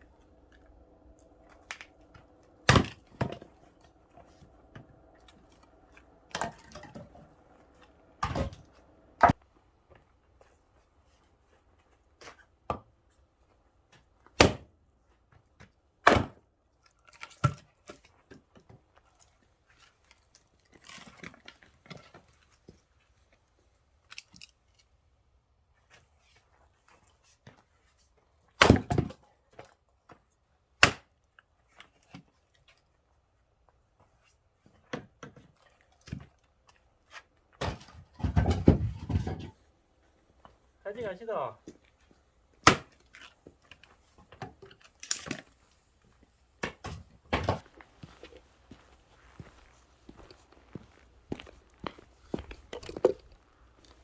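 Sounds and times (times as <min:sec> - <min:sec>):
axe striking logs: 0:02.7 - 0:03.5, 0:08.2 - 0:08.6, 0:14.4 - 0:14.7, 0:16.0 - 0:16.4, 0:28.6 - 0:29.1, 0:30.8 - 0:31.1, 0:37.6 - 0:39.4, 0:42.6 - 0:43.0, 0:46.6 - 0:47.7.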